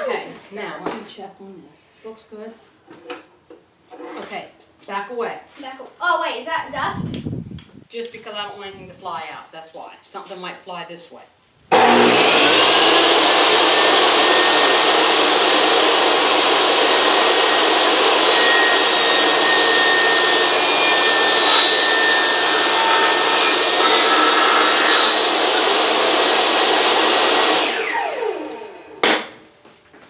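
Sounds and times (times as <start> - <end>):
electric saw cutting wood: 11.7 - 29.4.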